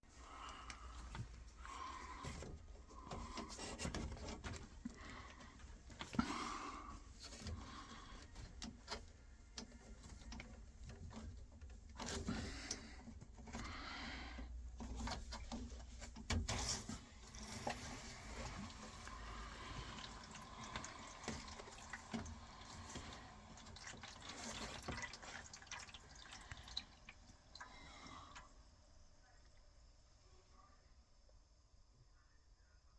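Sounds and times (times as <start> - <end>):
small drips and clicks: 7.2 - 13.6, 17.2 - 29.7
water trickling into a container: 17.2 - 28.7.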